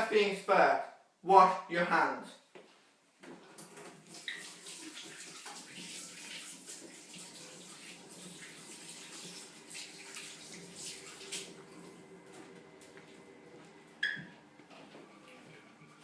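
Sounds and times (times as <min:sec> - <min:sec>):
water running from tap: 0:03.5 - 0:12.2
hands washing with splashes: 0:03.6 - 0:13.3.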